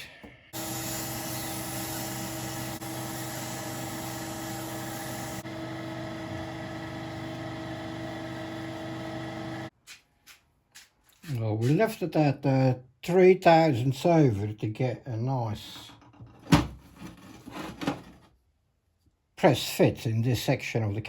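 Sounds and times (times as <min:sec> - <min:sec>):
metal lathe humming and whining: 0:00.6 - 0:09.7.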